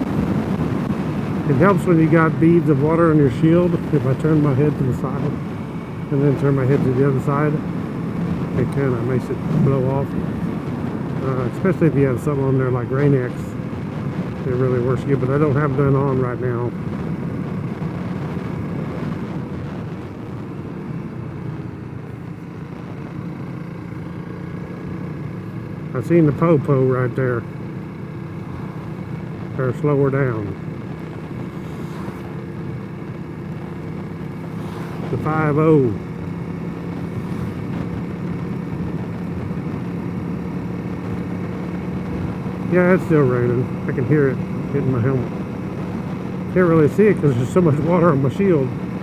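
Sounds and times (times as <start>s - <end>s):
wind noise: 0.0s - 23.1s
motorcycle engine running: 0.0s - 49.0s
road noise: 0.0s - 49.0s.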